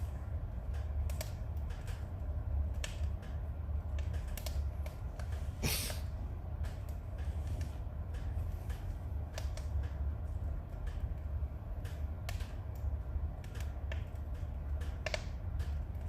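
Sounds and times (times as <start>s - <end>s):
fire low rumble: 0.0s - 16.0s
firewood crackling and popping: 0.0s - 16.0s.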